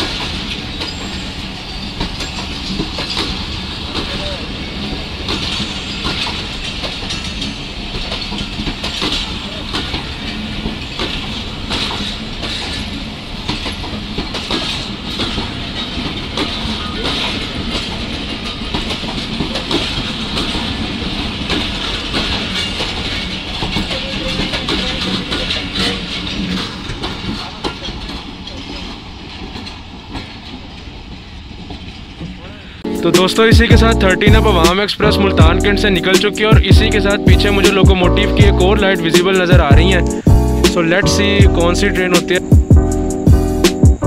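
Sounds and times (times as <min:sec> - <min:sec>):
train wheels rumbling on rail: 0:00.0 - 0:44.0
clicks over rail joints: 0:02.0 - 0:32.4.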